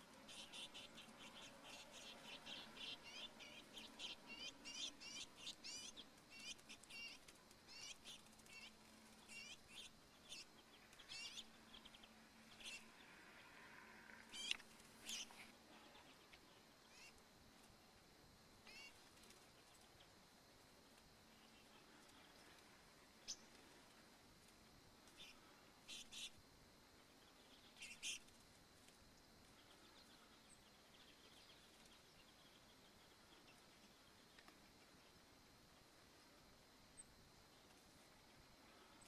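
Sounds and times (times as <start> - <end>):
small bird chirping: 0.0 - 13.5, 14.1 - 17.2, 18.6 - 20.2, 23.2 - 23.6, 25.1 - 26.4, 27.2 - 28.3.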